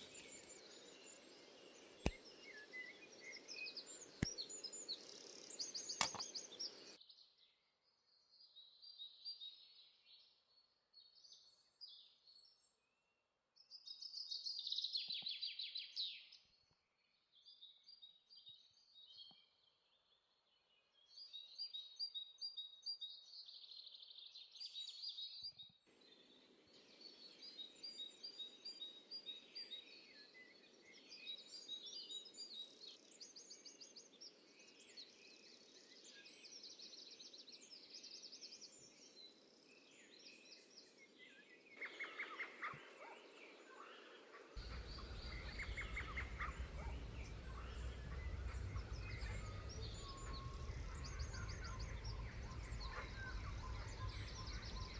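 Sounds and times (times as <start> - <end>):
songbirds chirping and trilling: 0.0 - 7.0, 44.2 - 54.9
steady low rumble: 44.6 - 54.9.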